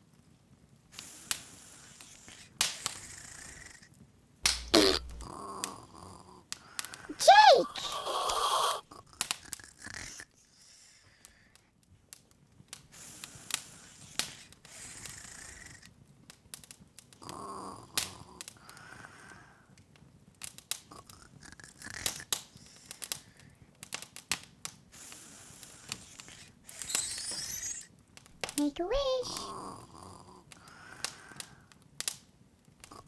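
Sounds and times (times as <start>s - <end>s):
fire crackling and popping: 0.8s - 7.1s, 11.3s - 33.0s
faint hiss: 25.1s - 27.9s.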